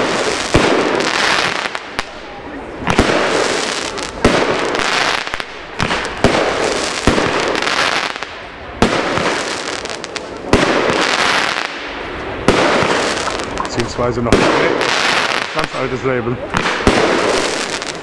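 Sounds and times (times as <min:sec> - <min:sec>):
firework bangs: 0:00.0 - 0:18.0
rushing hiss of firework bursts: 0:02.8 - 0:16.0.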